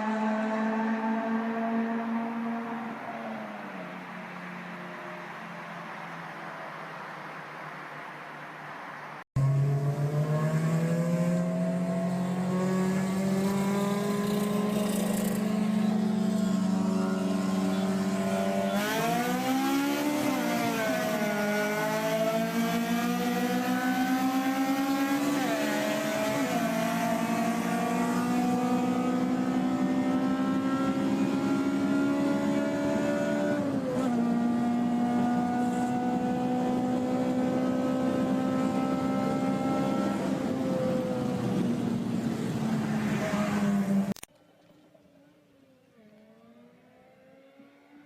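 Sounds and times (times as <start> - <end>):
car engine accelerating: 9.3 - 44.2.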